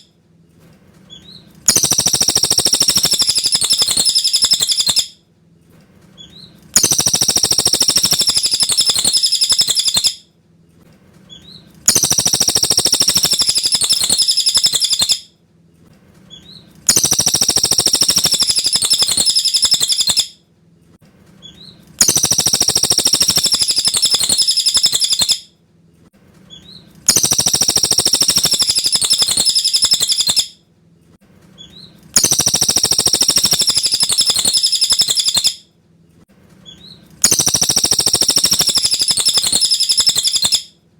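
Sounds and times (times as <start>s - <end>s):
songbird singing high song: 1.1s - 5.1s, 6.2s - 10.2s, 11.4s - 15.2s, 16.4s - 20.3s, 21.5s - 25.4s, 26.5s - 30.5s, 31.6s - 35.6s, 36.7s - 40.6s.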